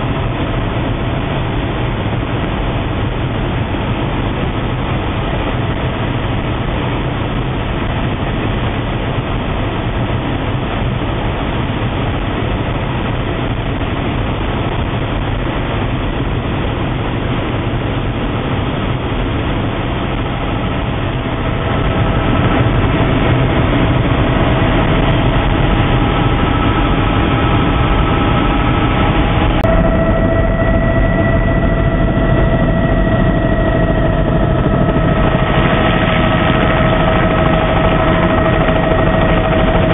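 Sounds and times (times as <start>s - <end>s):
helicopter engine and rotor drone: 0.0s - 39.9s
steady whining tones: 17.6s - 39.9s.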